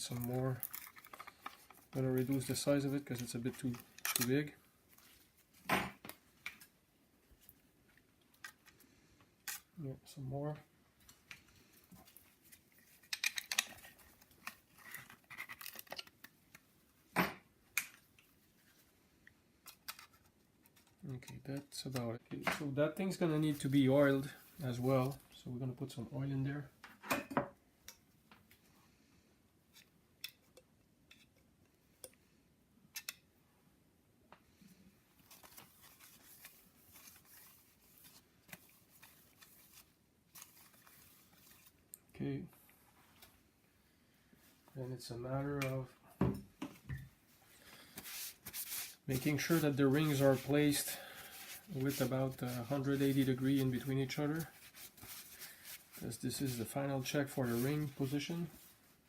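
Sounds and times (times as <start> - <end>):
soft rustling: 46.7 - 59.0.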